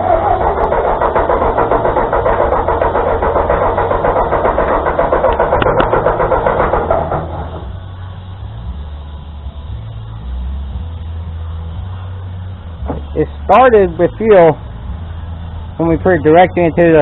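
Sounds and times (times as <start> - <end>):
tractor engine cranking: 0.0 - 10.4.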